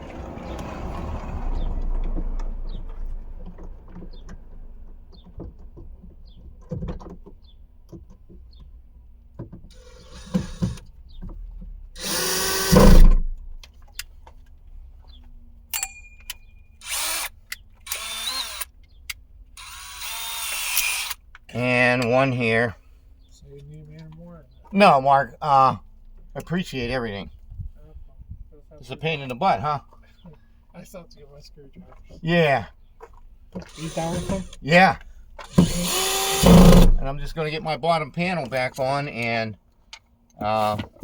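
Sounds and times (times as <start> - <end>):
power drill driving screws: 9.7 - 10.9, 12.0 - 13.3, 16.8 - 18.8, 19.6 - 21.2, 33.6 - 37.2.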